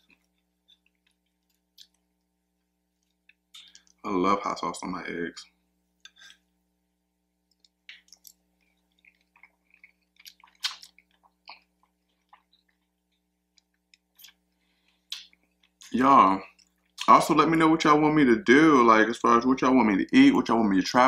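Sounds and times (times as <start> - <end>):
wet chewing smacks and clicks: 0.1 - 2.3, 7.5 - 15.9.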